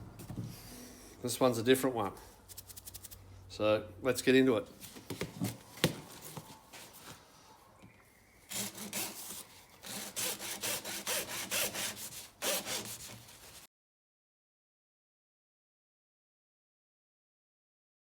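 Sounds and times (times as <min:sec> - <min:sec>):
saw cutting plastic: 0:08.5 - 0:13.6.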